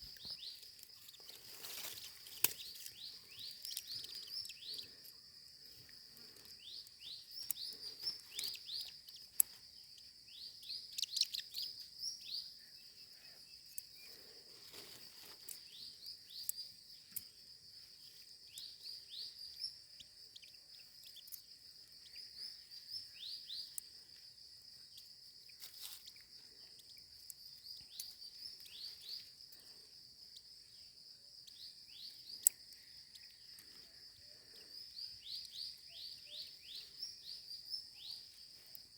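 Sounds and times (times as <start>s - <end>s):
baby birds chirping: 0.0s - 5.0s, 6.4s - 12.6s.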